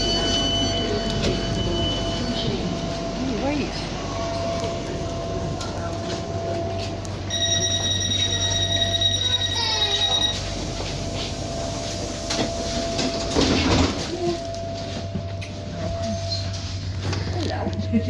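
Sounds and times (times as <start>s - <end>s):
high steady tone: 0.0s - 13.4s
train humming: 0.0s - 18.0s.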